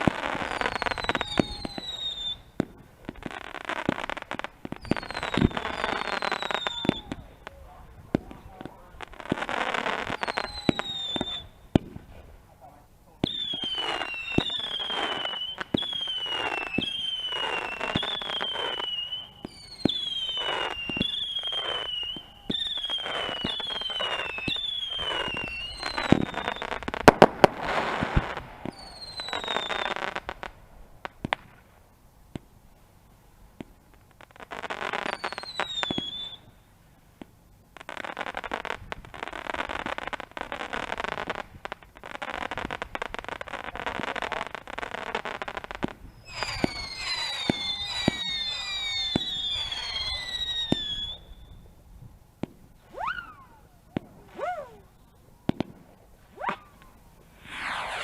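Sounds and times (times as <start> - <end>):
firework whistles falling in pitch: 0.0 - 2.6, 4.7 - 7.4, 9.4 - 11.7, 13.2 - 30.3, 34.6 - 36.5, 45.8 - 51.7, 52.8 - 54.9, 56.3 - 58.0
firework bangs: 0.0 - 12.4, 13.1 - 32.5, 37.2 - 51.7, 55.5 - 58.0
fireworks crackling: 0.0 - 58.0.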